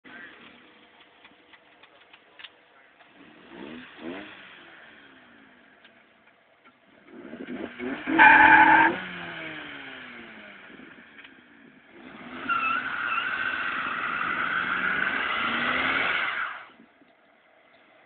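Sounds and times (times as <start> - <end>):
car engines revving: 0.1 - 18.0
loud high squeal: 8.1 - 9.0.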